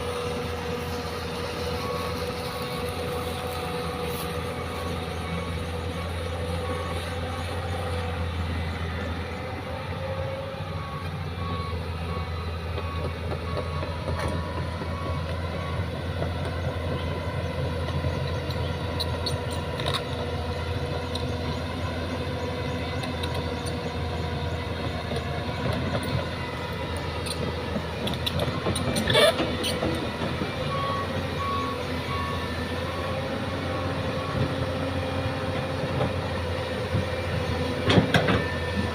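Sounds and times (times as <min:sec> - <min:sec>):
heavy diesel machinery running: 0:00.0 - 0:38.9
fast pulsing reversing beep: 0:30.6 - 0:34.7.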